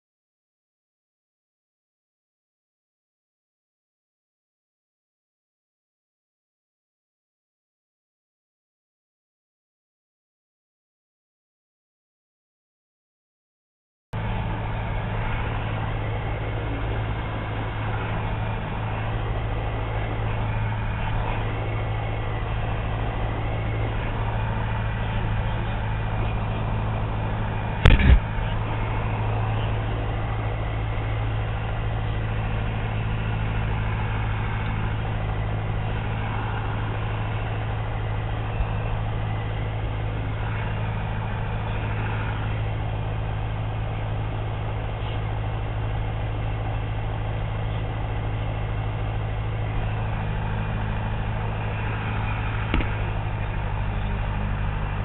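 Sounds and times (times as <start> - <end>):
propeller plane engine humming: 14.2 - 55.0
sharp double knock: 27.9 - 28.3.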